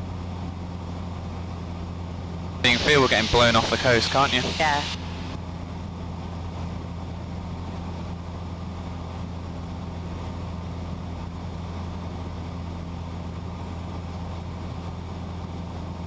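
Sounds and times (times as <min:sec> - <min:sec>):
propeller engine droning: 0:01.4 - 0:15.9
faint rush of air: 0:02.6 - 0:05.4.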